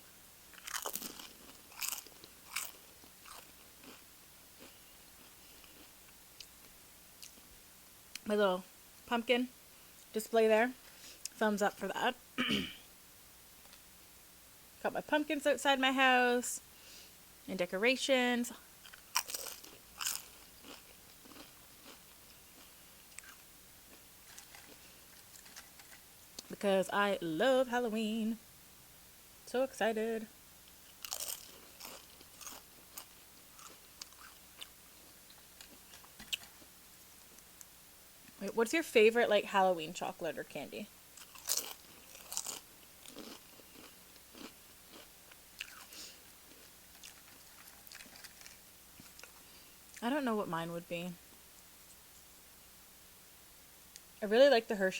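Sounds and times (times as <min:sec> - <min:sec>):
chewing crunchy chips: 0:00.5 - 0:06.6, 0:18.8 - 0:26.5, 0:30.9 - 0:36.7, 0:41.2 - 0:49.5.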